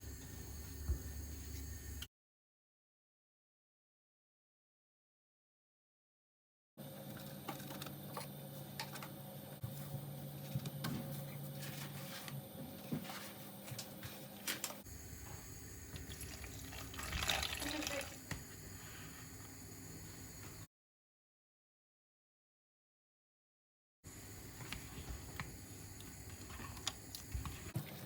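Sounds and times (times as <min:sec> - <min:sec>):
water running from a tap: 0:15.8 - 0:18.4
water splashing: 0:16.0 - 0:18.2.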